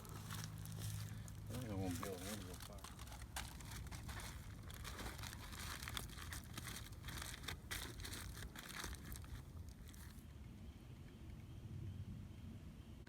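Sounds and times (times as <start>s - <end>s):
foil crinkling: 0.0s - 10.2s.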